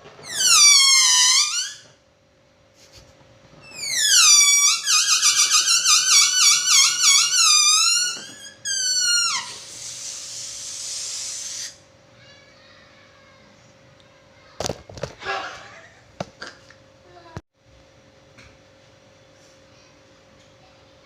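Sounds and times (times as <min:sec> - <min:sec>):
balloon squealing as air escapes: 0:00.2 - 0:02.0, 0:03.6 - 0:11.8.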